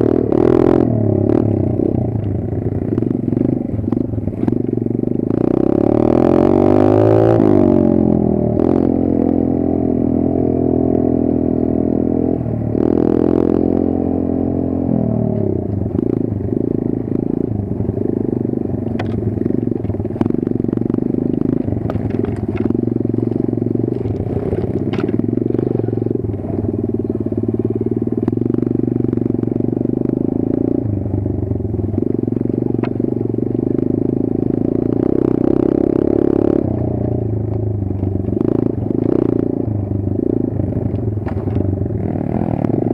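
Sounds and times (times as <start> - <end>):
motorbike engine running: 0.0 - 42.9
sharp clicks and clatter: 18.8 - 20.5, 21.2 - 27.2, 31.8 - 33.2, 36.8 - 39.3, 40.7 - 41.7.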